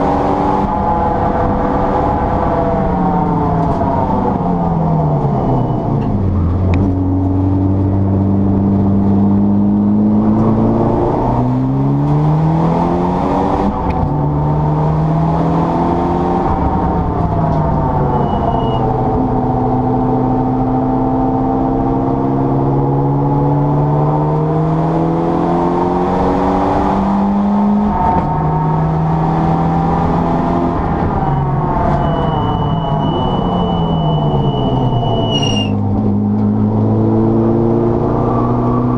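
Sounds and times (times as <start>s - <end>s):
car engine revving through gears: 0.0s - 38.9s
thin high whistle: 31.2s - 35.8s.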